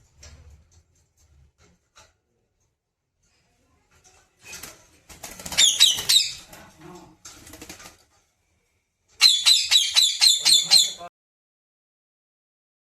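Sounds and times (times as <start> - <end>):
parrot flapping wings: 4.2 - 8.3
parrot screeching: 9.2 - 11.1.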